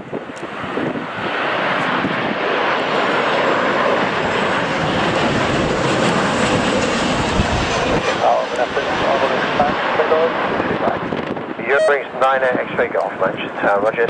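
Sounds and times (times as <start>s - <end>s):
airliner engines rushing: 0.0s - 14.0s
faint high whine: 11.7s - 12.2s.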